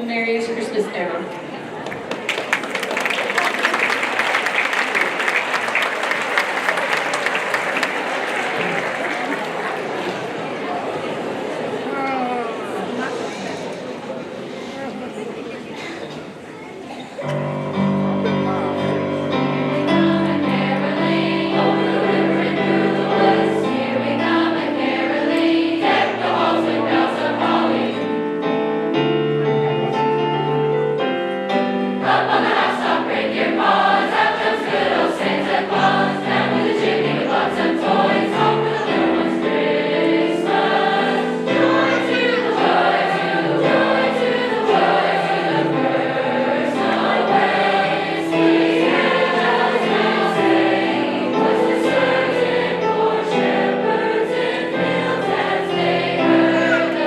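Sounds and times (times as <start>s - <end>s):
choir singing with accompaniment: 17.3s - 30.2s, 30.8s - 57.0s.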